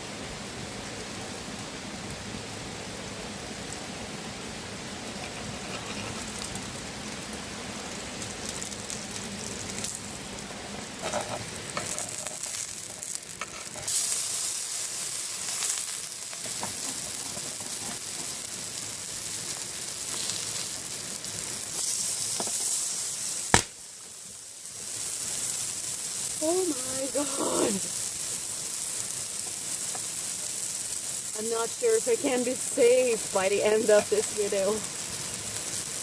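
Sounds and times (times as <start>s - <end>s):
food sizzling on hot stone: 0.0s - 36.0s
sharp click: 23.5s - 23.8s.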